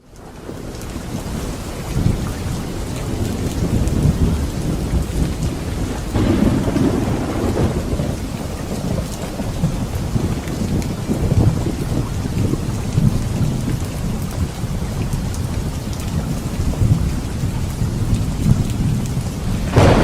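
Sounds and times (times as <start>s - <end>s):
heavy rain: 0.0s - 20.0s
low rumbling thunder: 0.4s - 20.0s.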